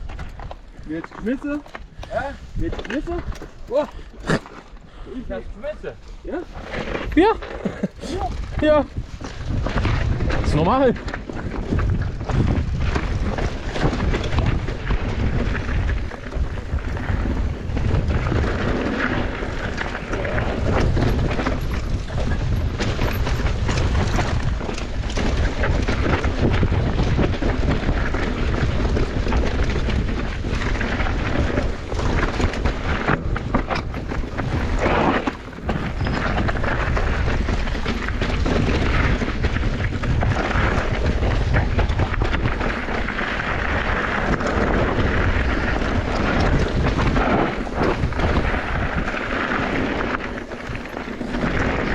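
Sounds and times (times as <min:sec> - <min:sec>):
bike rattling and knocking: 0:00.0 - 0:51.9
wind buffeting microphone: 0:00.0 - 0:51.9.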